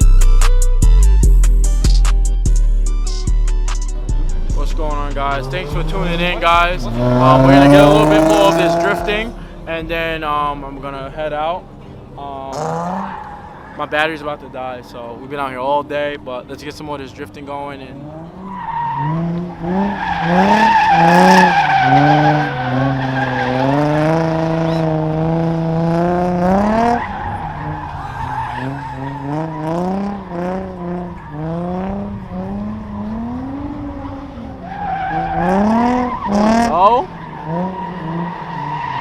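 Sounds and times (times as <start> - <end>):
car engine revving: 0.1 - 39.0
tyres squealing: 5.2 - 9.4, 18.0 - 25.0, 26.5 - 33.3, 34.0 - 39.0.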